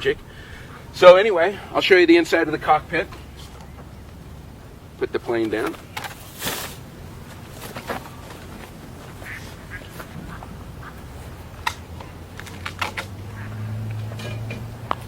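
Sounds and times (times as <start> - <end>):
low steady hum: 0.0 - 15.0
ducks quacking: 9.0 - 12.5, 13.2 - 14.0.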